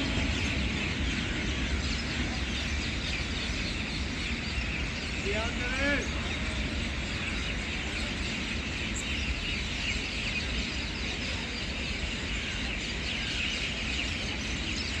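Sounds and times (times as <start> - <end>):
low rumble: 0.0 - 11.5
birds chirping: 0.0 - 15.0.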